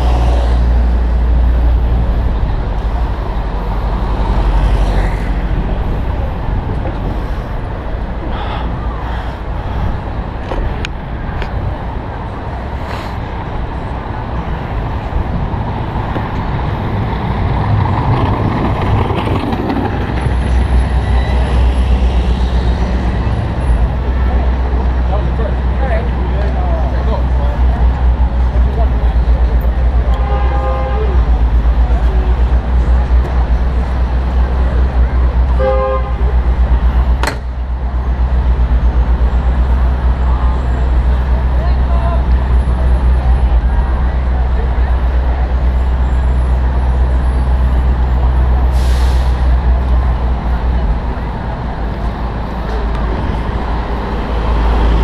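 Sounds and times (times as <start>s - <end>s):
city street traffic: 0.0s - 55.0s
deep engine rumble: 0.0s - 55.0s
car horn toot: 30.1s - 31.2s, 35.6s - 36.2s.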